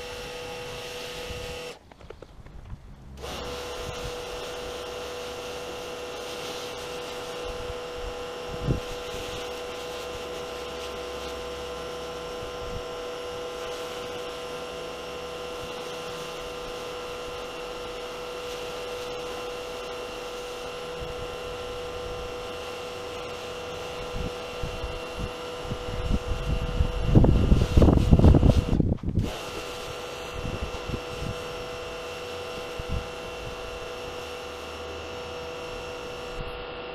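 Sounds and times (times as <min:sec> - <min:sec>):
small motor humming: 0:00.0 - 0:01.8, 0:03.1 - 0:36.9.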